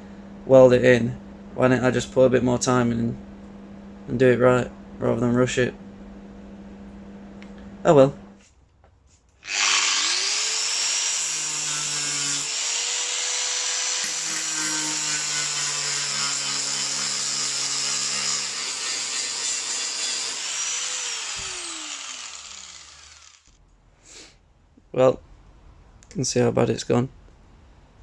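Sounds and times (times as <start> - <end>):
angle grinder grinding steel: 9.4 - 23.6.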